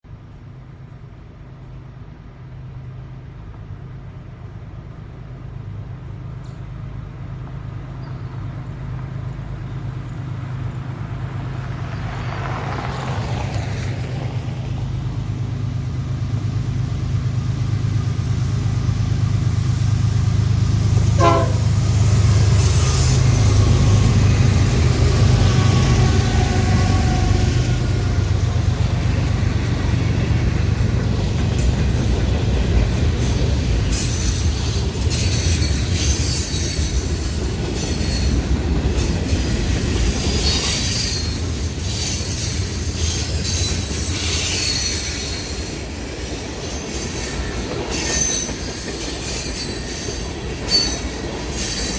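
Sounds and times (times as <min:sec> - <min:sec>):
diesel locomotive engine rumble: 0:00.1 - 0:51.9.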